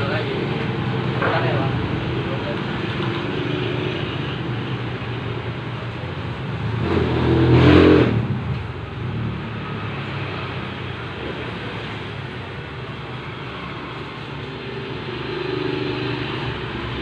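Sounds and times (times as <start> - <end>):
road traffic: 0.0 - 17.0
vehicle passing close: 6.4 - 12.8.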